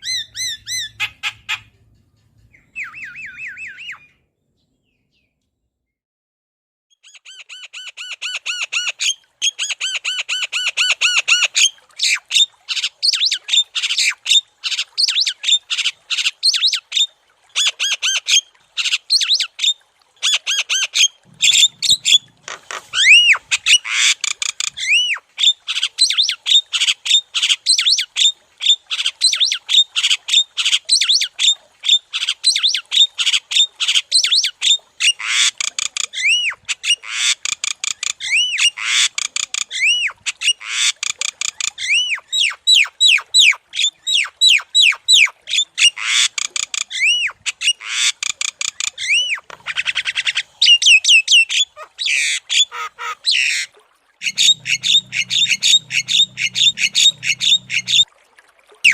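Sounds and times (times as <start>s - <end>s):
bird whistled notes: 2.6s - 4.1s
bird harsh chattering calls: 21.4s - 25.1s, 54.2s - 58.0s.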